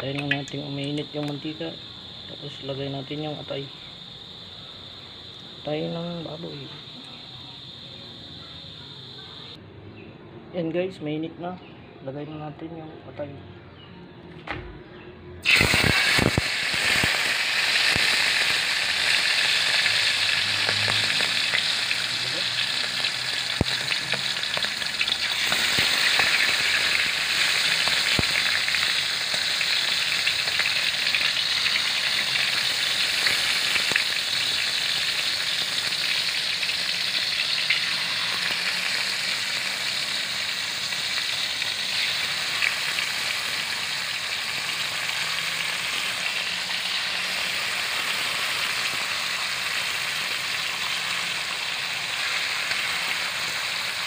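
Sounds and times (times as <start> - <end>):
oil popping: 0.0 - 1.5, 15.4 - 54.0
liver sizzling in oil: 15.4 - 54.0.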